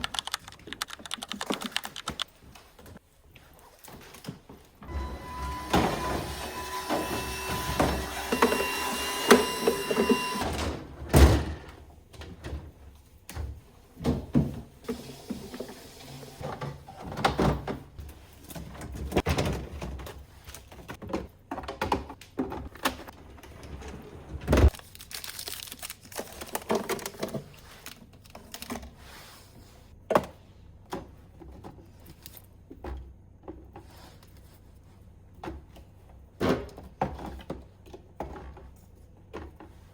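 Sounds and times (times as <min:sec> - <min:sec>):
refrigerator shelves clattering: 0:13.4 - 0:15.7, 0:16.4 - 0:24.8.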